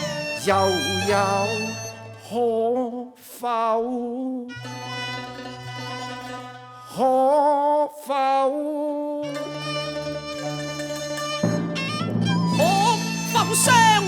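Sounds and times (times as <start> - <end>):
bowed string accompaniment: 0.0 - 2.8, 4.5 - 7.8, 9.2 - 14.0
opera singing with vibrato: 0.0 - 4.6, 12.6 - 14.0.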